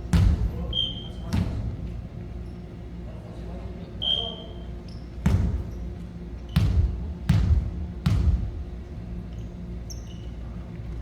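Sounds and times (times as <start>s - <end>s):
basketball bouncing on gym floor: 0.0s - 1.7s, 5.2s - 5.8s, 6.5s - 8.6s
shoe squeak: 9.8s - 10.4s.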